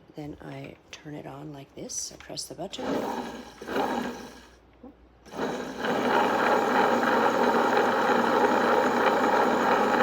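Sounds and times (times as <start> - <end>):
electric stone grinder running: 2.8 - 4.5, 5.3 - 10.0.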